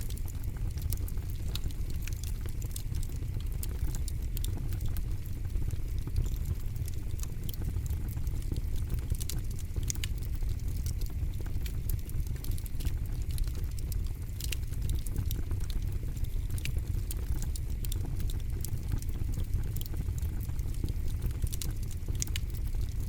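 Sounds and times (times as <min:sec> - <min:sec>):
campfire crackling: 0:00.0 - 0:22.9
low rumble of campfire: 0:00.0 - 0:23.0.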